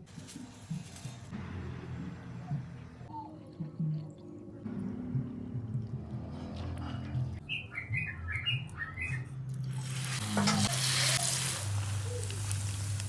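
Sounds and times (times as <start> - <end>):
hot oil sizzling: 9.6 - 13.0.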